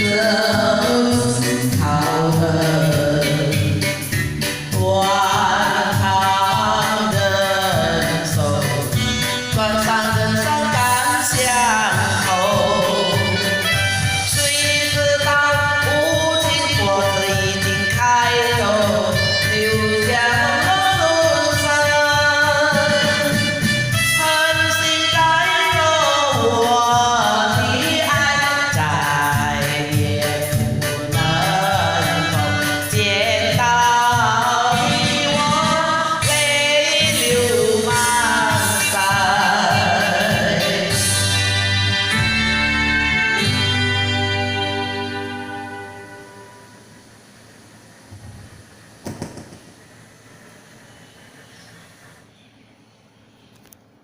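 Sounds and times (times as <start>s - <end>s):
person singing: 0.0s - 42.6s
instrumental backing: 0.0s - 47.0s.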